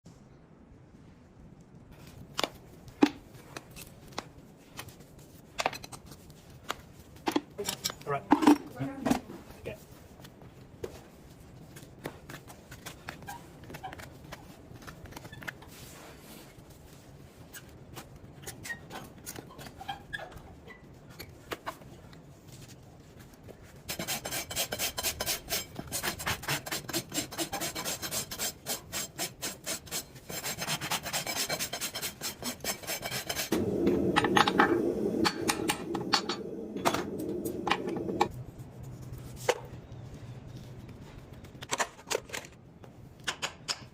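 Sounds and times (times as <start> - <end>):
rasp filing horse hoof: 23.9 - 38.3.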